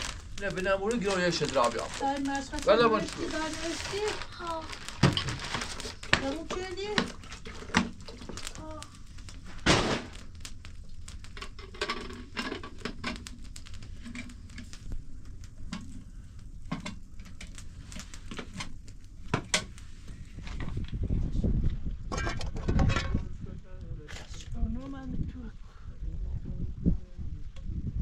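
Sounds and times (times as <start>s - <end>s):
low rumble: 0.0s - 28.0s
objects being handled: 1.0s - 9.8s.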